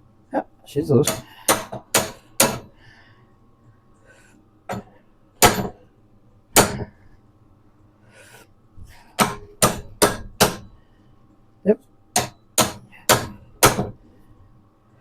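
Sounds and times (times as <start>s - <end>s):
hammer striking steel: 1.0s - 2.7s, 5.4s - 5.8s, 6.6s - 6.9s, 9.2s - 10.7s, 12.2s - 14.0s.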